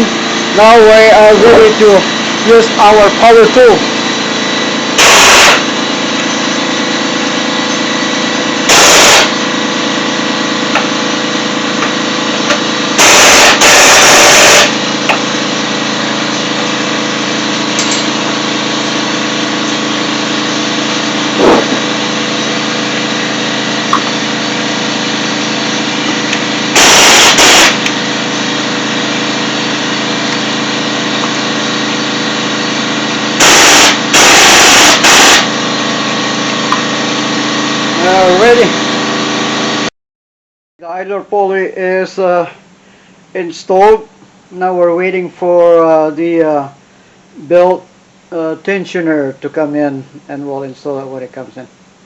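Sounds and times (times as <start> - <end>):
mechanical hum: 0.0 - 39.9, 40.8 - 52.0
impact wrench rattling bursts: 0.5 - 36.7.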